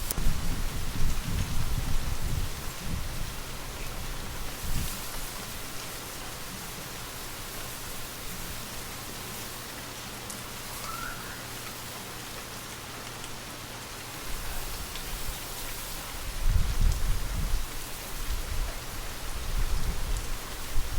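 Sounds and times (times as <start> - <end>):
low wind rumble: 0.0 - 8.8, 16.0 - 20.9
gentle rain falling: 0.0 - 20.9.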